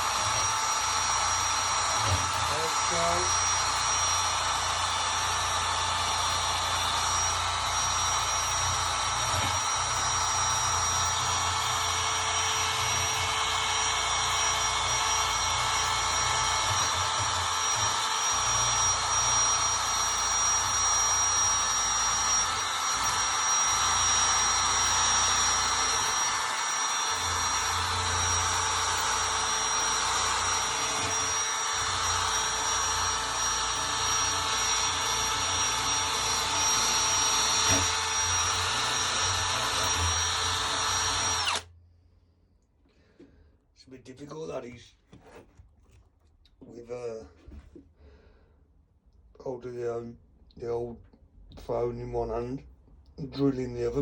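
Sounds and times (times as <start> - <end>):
drill wire brush scrubbing metal: 0.0 - 41.6.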